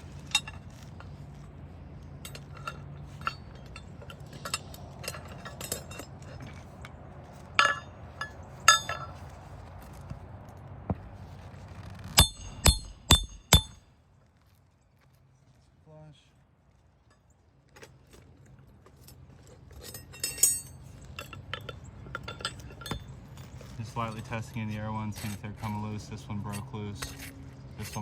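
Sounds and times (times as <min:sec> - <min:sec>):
hammer blows with metallic ringing: 0:12.2 - 0:13.8.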